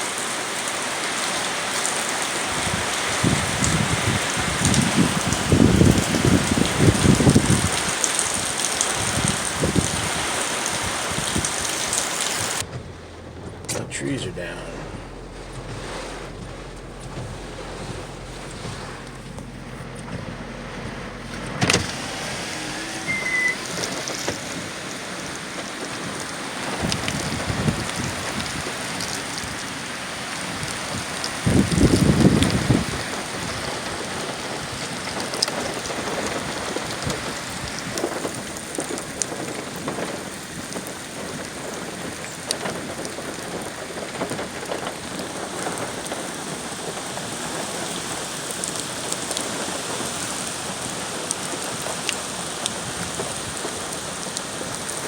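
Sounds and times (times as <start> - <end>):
heavy rain with drop ticks: 0.0 - 55.0
low rumble: 12.6 - 26.3.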